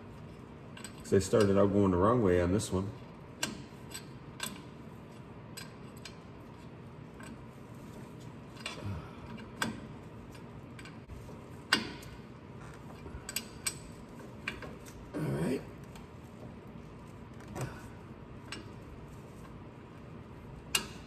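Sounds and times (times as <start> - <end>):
wrench clinking on metal bolts: 0.7 - 1.7, 20.7 - 21.0.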